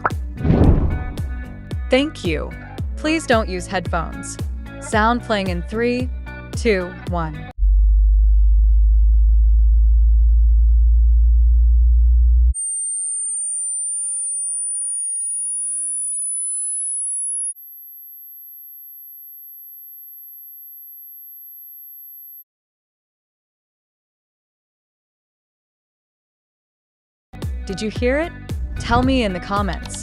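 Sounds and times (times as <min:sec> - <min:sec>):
very low test tone: 0:00.4 - 0:01.5, 0:28.7 - 0:30.0
rising high-pitched tone: 0:12.6 - 0:17.6.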